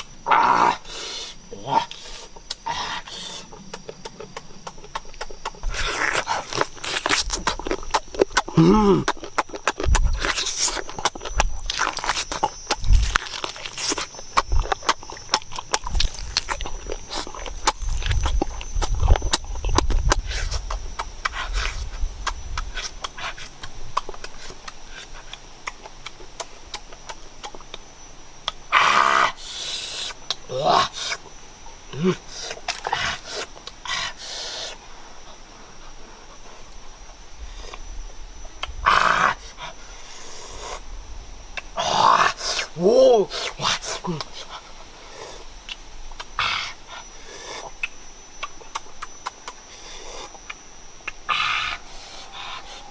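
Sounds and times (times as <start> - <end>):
crunchy chewing: 0.0 - 40.9, 41.5 - 52.9
person humming: 8.5 - 9.2.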